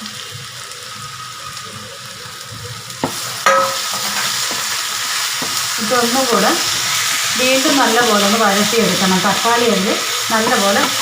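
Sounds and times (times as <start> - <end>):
shallots sizzling in hot oil: 0.0 - 11.0
sharp knocks against pan: 3.0 - 3.8.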